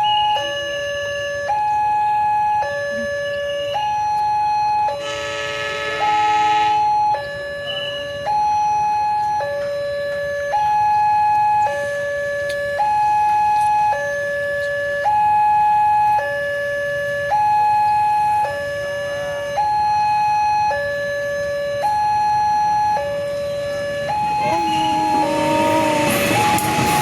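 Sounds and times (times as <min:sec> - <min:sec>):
level-crossing warning alarm: 0:00.0 - 0:27.0
train horn blowing: 0:05.0 - 0:06.9, 0:24.2 - 0:27.0.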